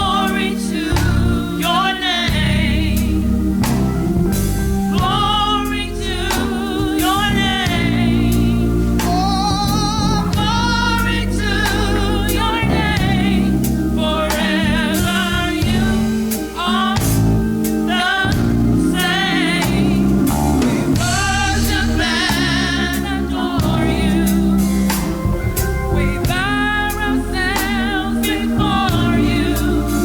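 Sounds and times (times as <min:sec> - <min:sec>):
bass line: 0:00.0 - 0:16.4, 0:17.0 - 0:30.0
person singing with vibrato: 0:04.9 - 0:24.9
drum hits: 0:11.7 - 0:13.8.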